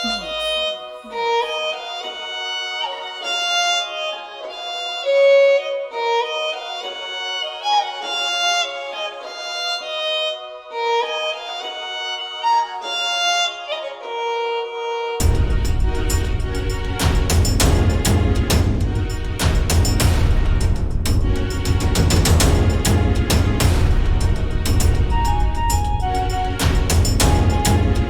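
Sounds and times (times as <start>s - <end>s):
solo violin slow melody: 0.0s - 16.0s, 25.1s - 28.0s.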